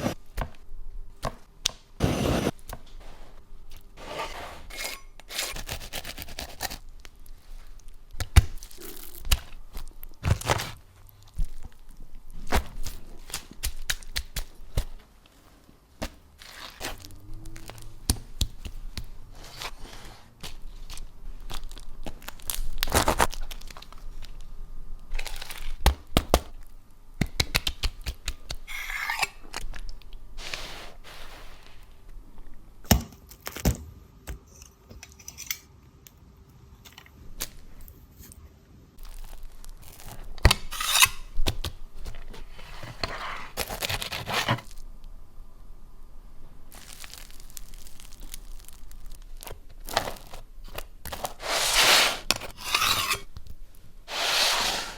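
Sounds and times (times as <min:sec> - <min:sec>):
scrapes: 0:04.0 - 0:05.6, 0:51.3 - 0:53.3
crusty bread crackling and tearing: 0:05.5 - 0:15.0, 0:16.0 - 0:19.7, 0:20.4 - 0:26.7, 0:39.0 - 0:42.4, 0:43.5 - 0:44.9, 0:46.7 - 0:51.6.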